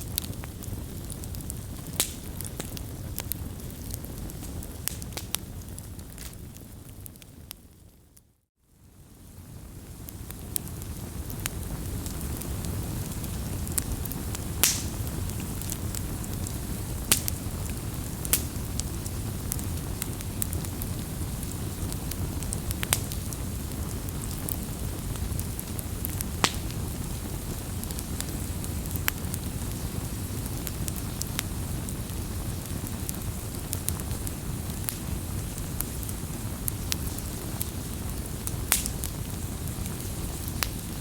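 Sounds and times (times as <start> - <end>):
fire pops and snaps: 0.0 - 7.7, 9.9 - 41.0
low roar of flames: 0.0 - 7.8, 8.9 - 41.0.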